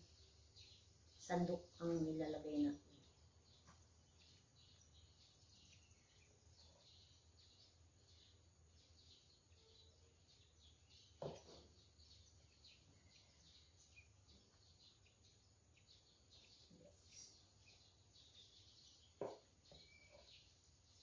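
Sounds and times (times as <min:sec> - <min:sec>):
faint bird chirping: 0:00.0 - 0:21.0
soft knock: 0:11.2 - 0:11.7, 0:19.2 - 0:19.9.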